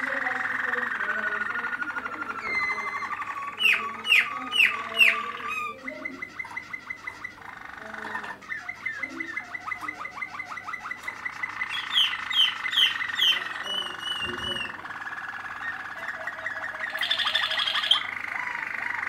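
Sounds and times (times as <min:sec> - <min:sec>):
canary singing trills: 0:00.0 - 0:19.0.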